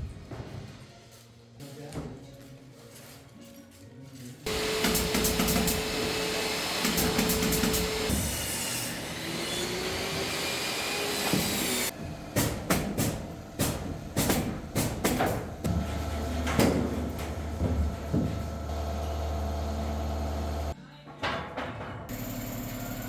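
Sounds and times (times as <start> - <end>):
power tool whining: 4.5 - 11.9.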